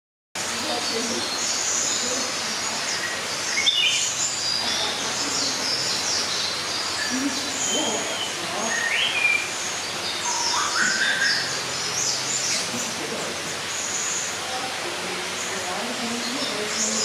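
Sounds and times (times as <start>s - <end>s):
birds chirping: 0.4s - 17.0s
steady background hiss: 0.4s - 17.0s
rising whistled bird notes: 7.0s - 12.7s.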